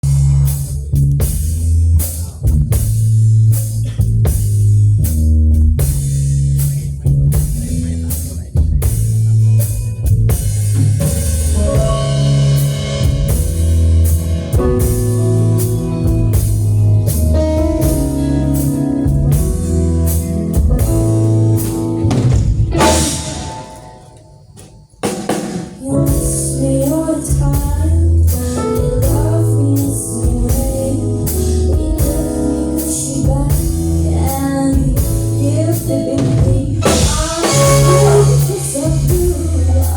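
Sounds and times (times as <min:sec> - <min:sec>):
heavy bass line: 0:00.0 - 0:24.4, 0:25.0 - 0:39.9
drum kit: 0:00.0 - 0:39.9
guitar or keyboard lines: 0:10.8 - 0:25.1.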